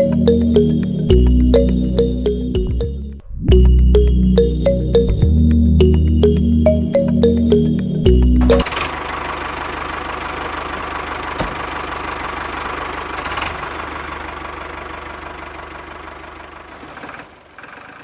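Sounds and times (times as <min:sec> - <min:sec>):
background music: 0:00.0 - 0:08.7
model tractor motor running: 0:08.6 - 0:18.0.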